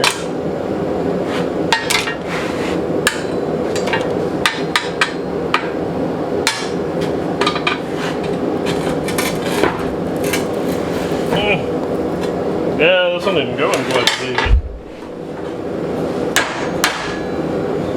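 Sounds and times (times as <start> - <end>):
steady low hum: 0.0 - 17.9
hammer striking hot steel: 3.0 - 5.8, 6.4 - 7.8, 16.3 - 17.4.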